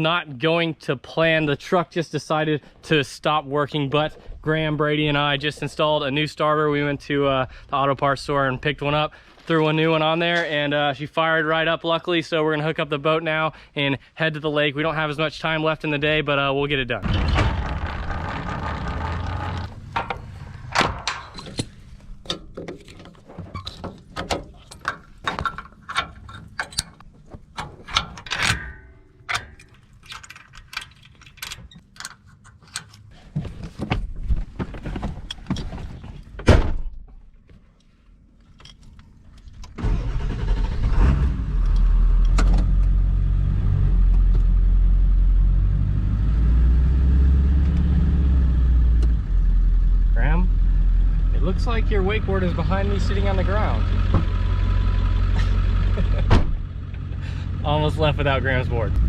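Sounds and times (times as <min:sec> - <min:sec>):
truck engine rumbling: 0:16.0 - 0:31.3, 0:39.4 - 0:59.0
metal clicks and clanks: 0:17.0 - 0:33.1.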